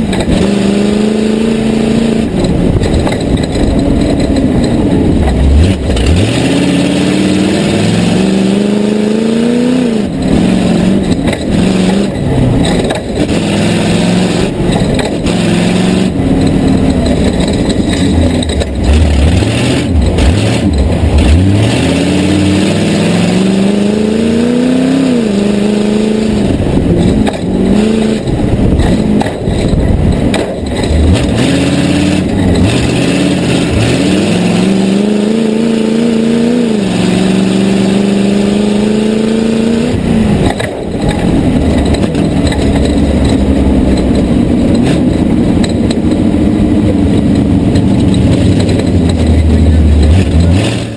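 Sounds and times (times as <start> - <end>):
truck engine revving: 0.0 - 50.9
knocks and thumps: 2.4 - 6.3, 10.2 - 13.5, 14.4 - 21.5, 26.7 - 34.0, 40.3 - 50.7.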